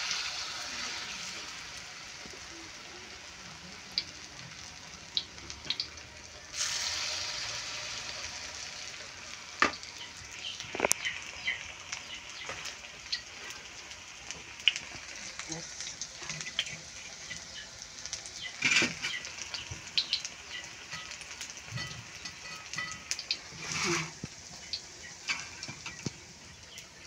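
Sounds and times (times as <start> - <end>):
fritters sizzling in hot oil: 0.0 - 27.0.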